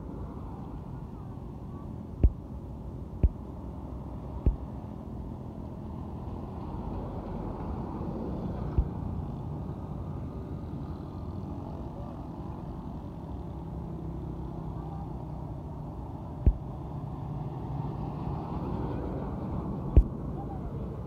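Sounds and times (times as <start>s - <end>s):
truck engine and road rumble: 0.0s - 21.0s
short low thumps: 2.2s - 2.4s, 3.2s - 3.4s, 4.4s - 4.7s.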